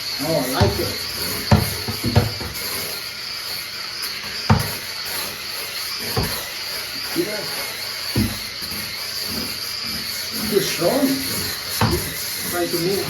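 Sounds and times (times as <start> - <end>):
electric scrub brush whining: 0.0 - 13.0
dull knocks: 1.5 - 2.6, 4.5 - 4.8, 8.2 - 8.4, 11.8 - 12.1.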